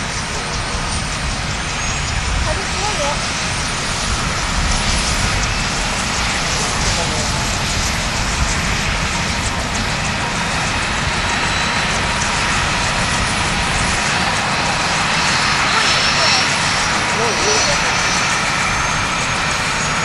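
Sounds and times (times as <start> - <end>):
aircraft engines running: 0.0 - 20.0
wind buffeting microphone: 0.0 - 20.0.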